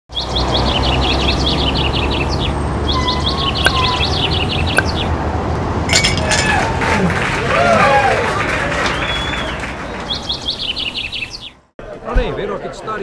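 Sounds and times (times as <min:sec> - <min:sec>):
bird chirping: 0:00.1 - 0:05.1, 0:10.1 - 0:11.6.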